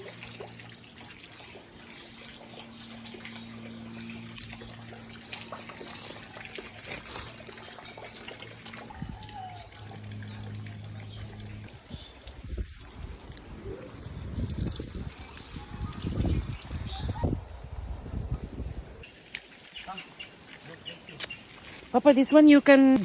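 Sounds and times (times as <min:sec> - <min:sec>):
steady low hum: 0:00.0 - 0:15.3
water trickling: 0:00.0 - 0:16.8.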